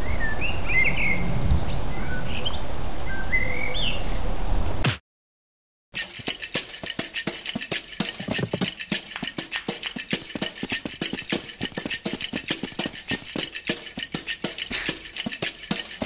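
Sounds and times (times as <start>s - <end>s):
rapid uneven clicking: 6.0s - 16.0s.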